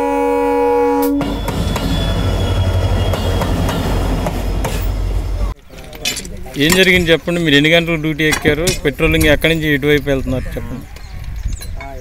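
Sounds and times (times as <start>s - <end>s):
train horn chord: 0.0s - 3.6s
train wheels rumbling and clicking: 1.2s - 7.1s.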